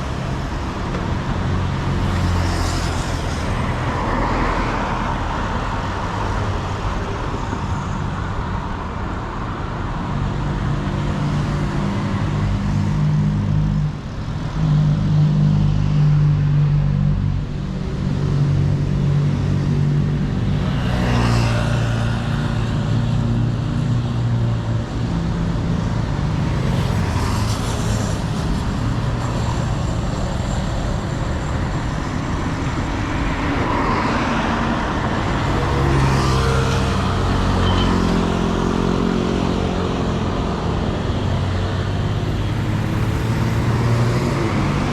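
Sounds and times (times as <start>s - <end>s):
vehicle engines humming: 0.0s - 44.9s.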